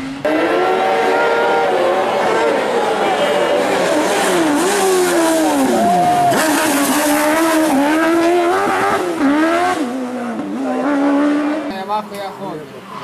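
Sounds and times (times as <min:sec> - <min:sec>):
race car engine revving: 0:00.0 - 0:12.2.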